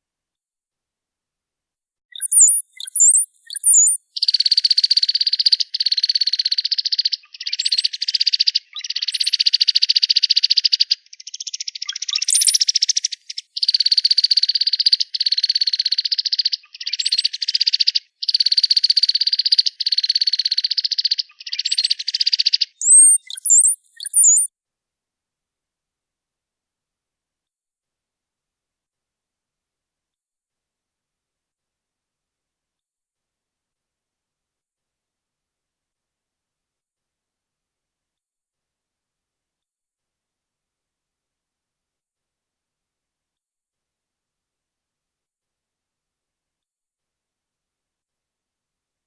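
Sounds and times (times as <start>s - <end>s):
bird whistles and buzzy trills: 2.1s - 24.5s.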